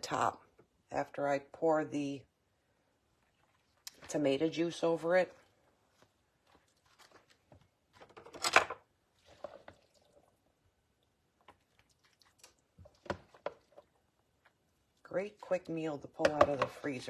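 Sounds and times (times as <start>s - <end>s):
soft squishing: 3.0s - 4.4s, 5.3s - 8.1s, 9.0s - 15.9s
rustling: 5.4s - 8.3s.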